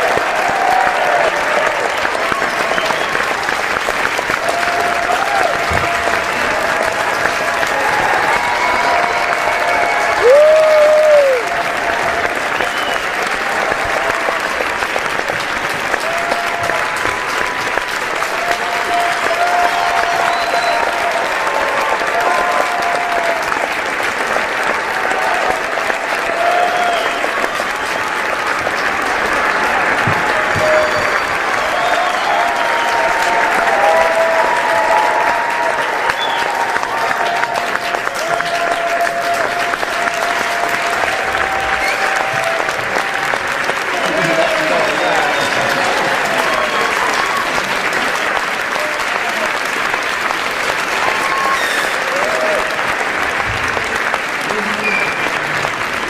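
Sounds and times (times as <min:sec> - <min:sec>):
audience applauding: 0:00.0 - 0:56.0
crowd cheering: 0:00.0 - 0:56.0.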